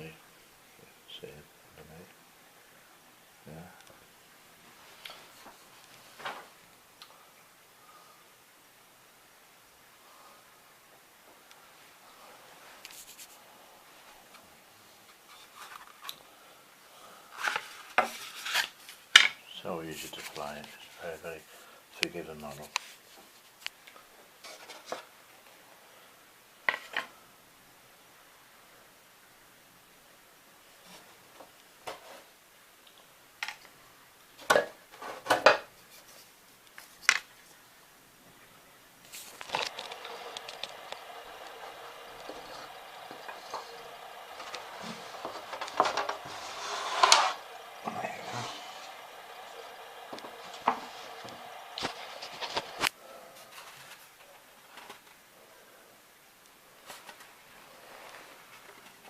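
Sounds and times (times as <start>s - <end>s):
faint handling ticks and rubs: 12.6s - 13.5s
steady buzzing hum: 38.2s - 53.3s
loud scrape: 42.2s - 49.4s.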